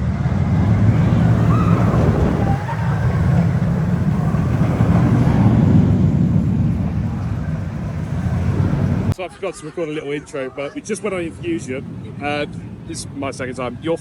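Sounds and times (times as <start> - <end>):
wind buffeting microphone: 0.0 - 9.2, 10.7 - 14.0
roller coaster train rumbling: 0.0 - 14.0
faint squeal: 0.8 - 3.7.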